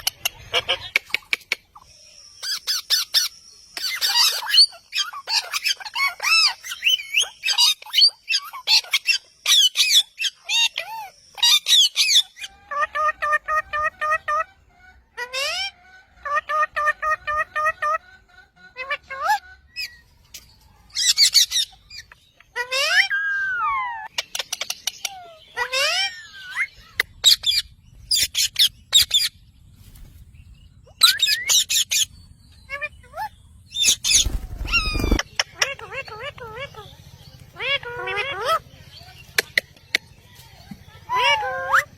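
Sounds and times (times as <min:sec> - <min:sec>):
parrot squawking: 0:00.0 - 0:01.2, 0:02.4 - 0:18.0, 0:21.0 - 0:24.1, 0:25.0 - 0:29.4, 0:31.0 - 0:37.0, 0:37.6 - 0:38.6
low rumble: 0:26.8 - 0:35.4.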